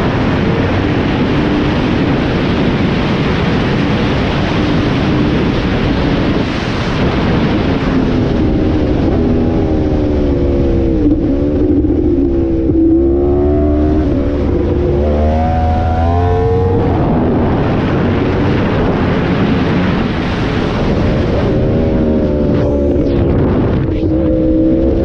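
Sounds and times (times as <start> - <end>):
wind noise: 0.0 - 25.0
motorcycle engine revving: 7.1 - 25.0.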